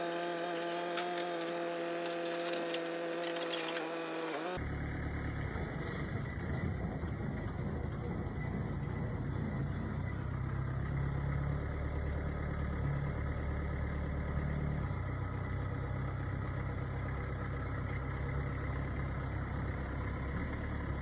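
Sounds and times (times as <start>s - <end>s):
diesel engine idling: 4.6s - 21.0s.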